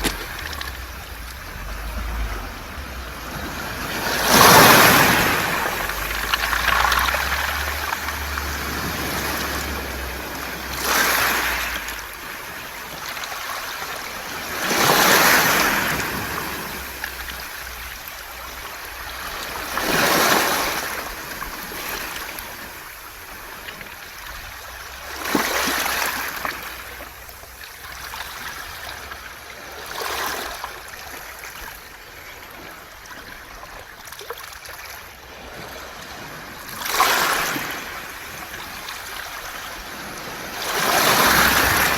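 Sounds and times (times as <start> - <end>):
pebbles rattling in draining water: 0.0 - 1.9, 4.4 - 9.6
waves washing over pebbles: 0.0 - 41.9.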